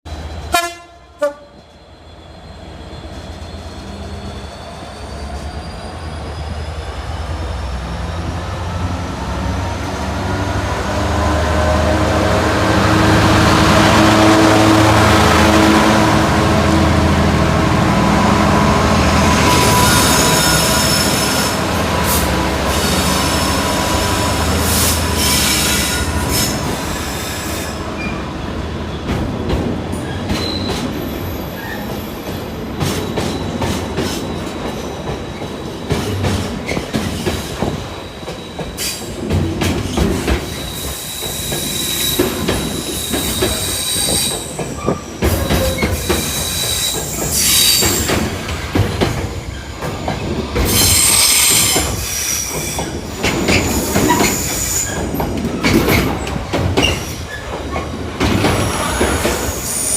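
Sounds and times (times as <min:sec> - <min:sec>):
diesel locomotive engine droning: 0:00.1 - 0:59.9
high wheel squeal: 0:01.5 - 0:08.8, 0:18.0 - 0:28.2, 0:30.0 - 0:32.4, 0:39.8 - 0:48.7, 0:49.3 - 0:56.2, 0:56.8 - 0:59.9
wagons clicking over rail joints: 0:32.8 - 0:59.6.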